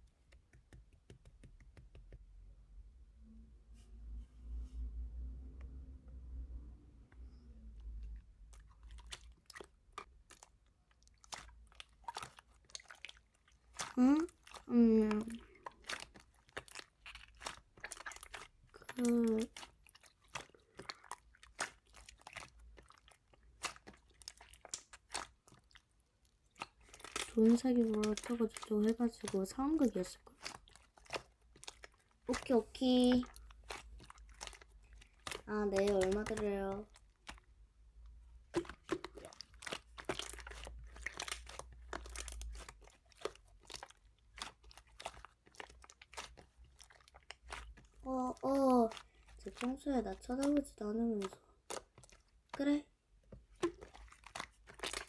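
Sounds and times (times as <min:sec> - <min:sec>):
slime being kneaded by hand: 0:00.0 - 0:02.5, 0:06.9 - 0:55.0
crisp clicks and pops: 0:24.5 - 0:25.3.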